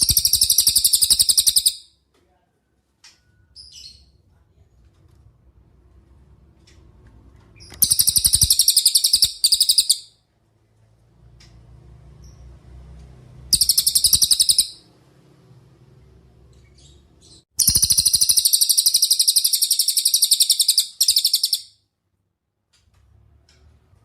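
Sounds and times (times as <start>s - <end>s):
bird singing rapid trills: 0.0s - 1.9s, 7.7s - 10.1s, 13.5s - 14.9s, 16.7s - 21.8s.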